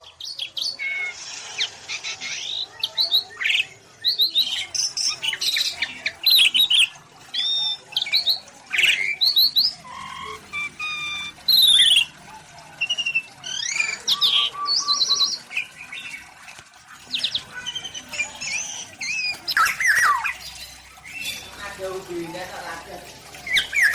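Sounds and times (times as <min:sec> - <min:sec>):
birds whistling chirping and squawking: 0:00.0 - 0:23.9.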